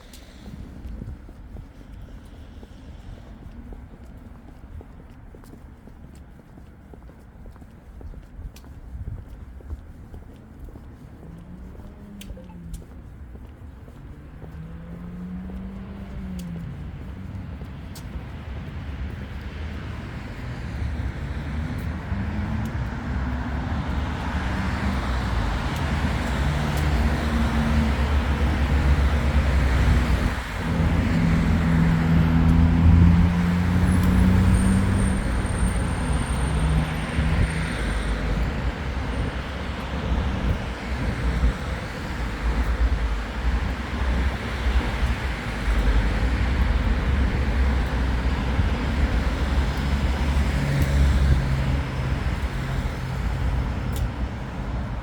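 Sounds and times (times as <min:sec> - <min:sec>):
vehicle passing by: 0:13.8 - 0:55.0.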